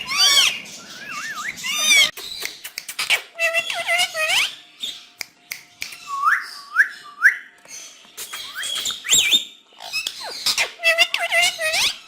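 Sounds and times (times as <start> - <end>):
parrots calling: 0.0 - 5.0, 7.8 - 12.0.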